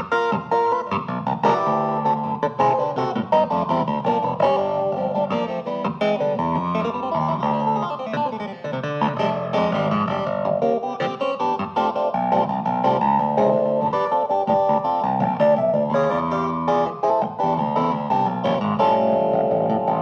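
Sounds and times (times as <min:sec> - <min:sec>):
plucked keyboard notes: 0:00.0 - 0:20.0
low keyboard chord: 0:11.8 - 0:20.0.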